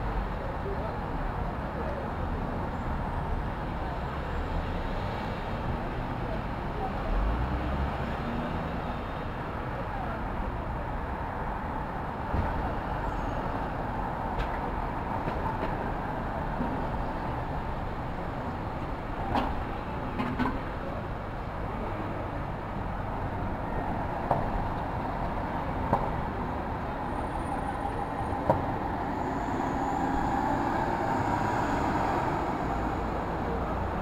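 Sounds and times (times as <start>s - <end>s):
street traffic: 0.0s - 34.0s
vehicle passing: 27.3s - 34.0s.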